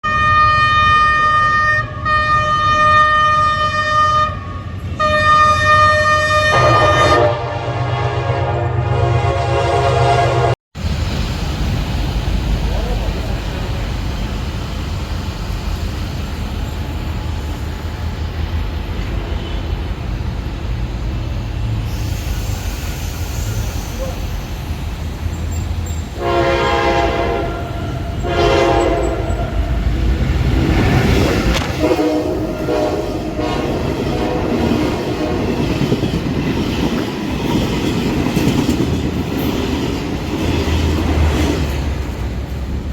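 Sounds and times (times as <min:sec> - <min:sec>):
train horn blasts: 0:00.0 - 0:10.6, 0:19.2 - 0:19.8, 0:26.2 - 0:30.0, 0:31.6 - 0:35.7
train rumble: 0:00.1 - 0:42.9
train wheels clattering on track: 0:10.8 - 0:42.9.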